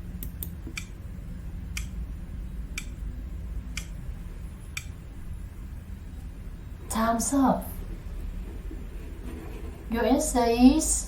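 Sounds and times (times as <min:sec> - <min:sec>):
steady low hum: 0:00.0 - 0:11.0
clock ticking: 0:01.8 - 0:02.0, 0:02.8 - 0:03.0, 0:03.7 - 0:04.0.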